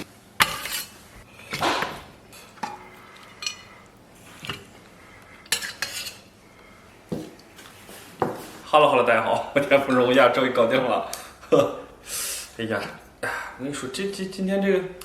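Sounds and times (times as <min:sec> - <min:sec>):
metal cookware clanking: 0:00.0 - 0:03.8, 0:05.5 - 0:06.3.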